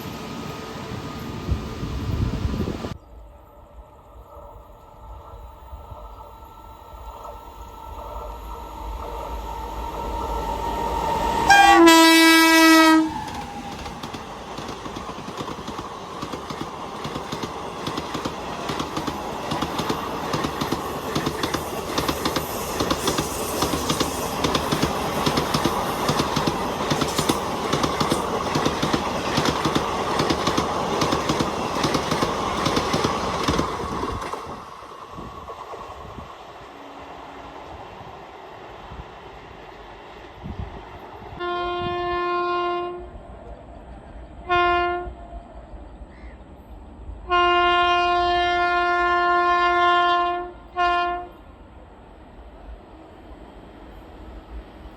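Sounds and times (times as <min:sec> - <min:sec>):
train rushing past: 0:00.0 - 0:54.9
train horn blast: 0:10.4 - 0:13.4, 0:41.3 - 0:43.2, 0:44.4 - 0:45.3, 0:47.3 - 0:51.5
rapid train wheel clatter: 0:13.1 - 0:35.9.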